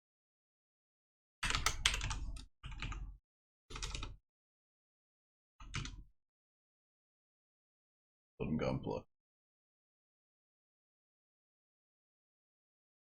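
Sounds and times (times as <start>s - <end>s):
computer keyboard typing: 1.4s - 3.0s, 3.7s - 4.2s, 5.7s - 6.0s.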